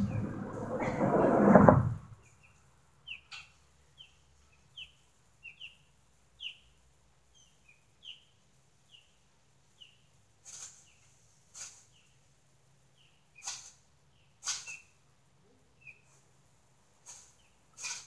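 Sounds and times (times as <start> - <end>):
small bird chirping: 2.2 - 12.3, 12.9 - 15.0, 15.6 - 16.3.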